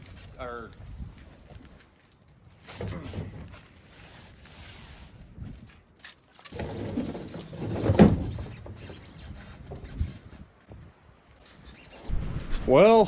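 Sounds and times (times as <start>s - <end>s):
wooden platform scraping and knocking: 6.5s - 10.9s.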